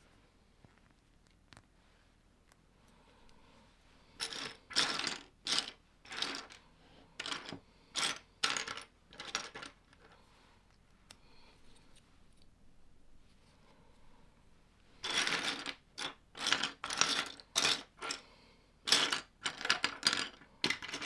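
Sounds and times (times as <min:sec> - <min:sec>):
plastic bricks clattering: 0:04.2 - 0:06.6, 0:07.2 - 0:10.0, 0:15.0 - 0:18.2, 0:18.9 - 0:21.0.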